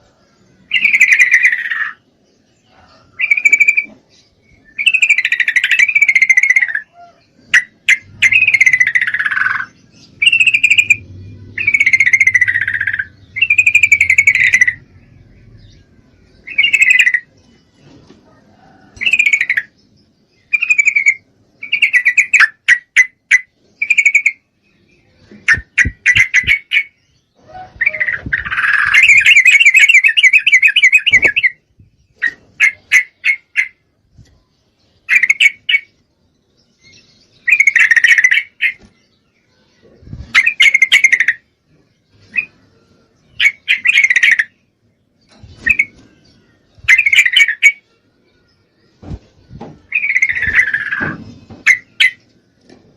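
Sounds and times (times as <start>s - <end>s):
bird chattering calls: 0.7s - 2.0s, 3.2s - 4.1s, 4.7s - 15.8s, 16.4s - 17.3s, 25.4s - 33.8s, 37.4s - 38.9s, 40.2s - 41.4s, 43.4s - 44.6s, 46.8s - 47.8s, 49.8s - 52.3s.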